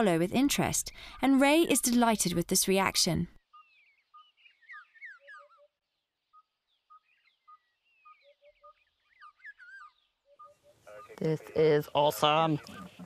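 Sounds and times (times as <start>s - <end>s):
lower bird notes: 3.4s - 11.4s.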